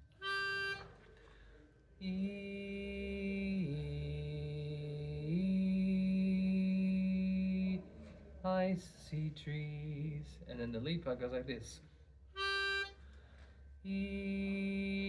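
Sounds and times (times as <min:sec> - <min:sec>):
man singing long held notes: 0:02.0 - 0:10.4, 0:13.8 - 0:15.0.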